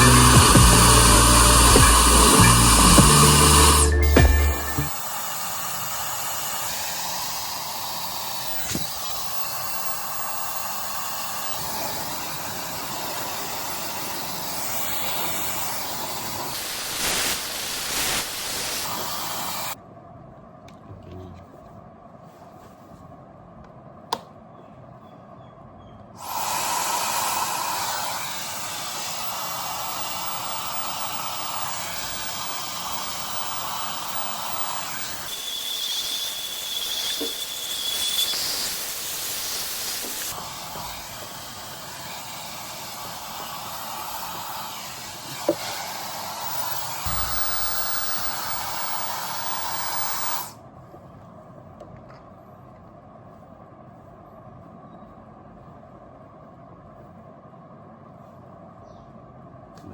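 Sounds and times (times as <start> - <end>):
hairdryer blowing air: 0.0 - 19.8, 26.2 - 50.6
faint high whistle: 28.1 - 40.3, 46.5 - 50.5.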